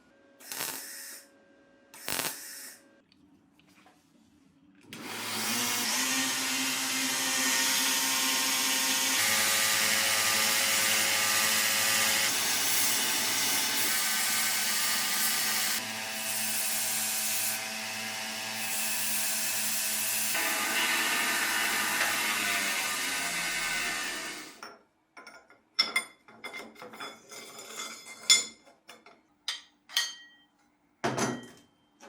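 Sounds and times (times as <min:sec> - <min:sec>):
power tool abrading metal: 0:05.0 - 0:24.6.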